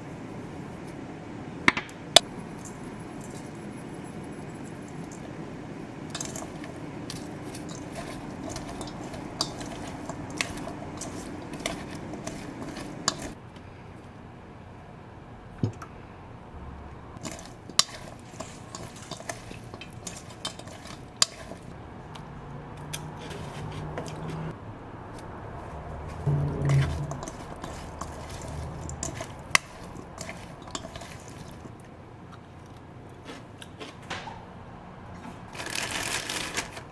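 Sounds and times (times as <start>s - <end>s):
steady hum: 0.0s - 13.8s, 19.8s - 32.4s
dishes and cutlery clinking: 6.1s - 13.4s, 17.2s - 21.8s, 26.2s - 31.7s.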